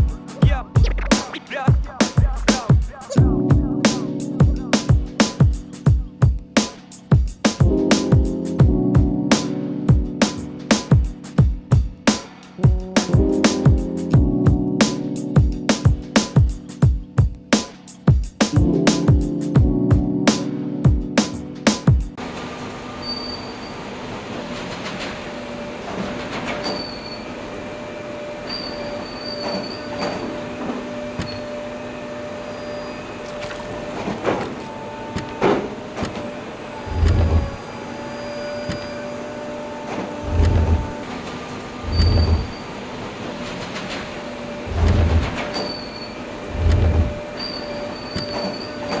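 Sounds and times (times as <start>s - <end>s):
heavy low thuds: 0.0s - 6.4s, 36.9s - 37.6s, 40.3s - 41.0s, 41.8s - 42.6s, 44.7s - 45.4s, 46.5s - 47.2s
wheel squeals: 22.8s - 25.0s, 25.6s - 35.9s, 36.7s - 49.0s
train rumbling on rails: 33.8s - 49.0s.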